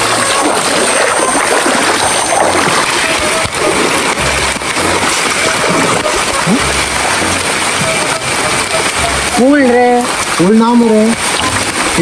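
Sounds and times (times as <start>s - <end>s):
heavy rain hissing: 0.0s - 12.0s
background music low beat: 3.4s - 12.0s.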